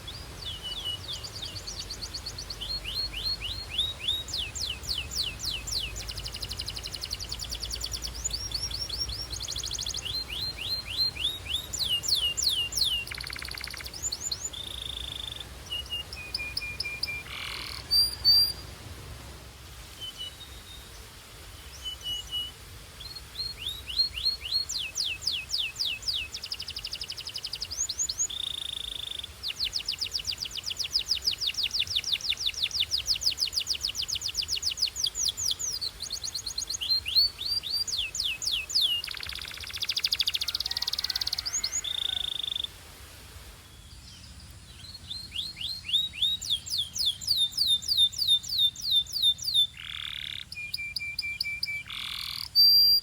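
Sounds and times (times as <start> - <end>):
canary singing trills: 0.0 - 18.6, 21.8 - 42.7, 43.9 - 53.0.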